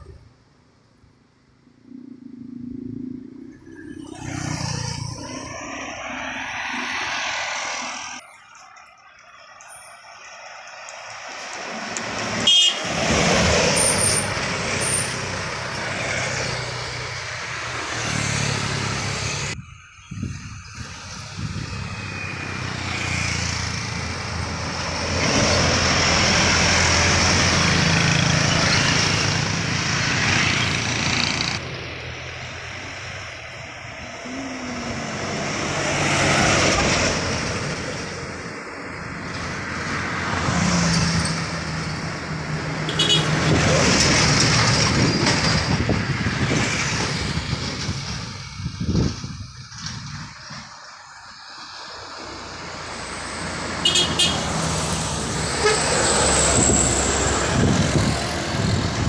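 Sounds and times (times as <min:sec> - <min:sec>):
truck diesel engines passing: 0:00.0 - 0:59.0.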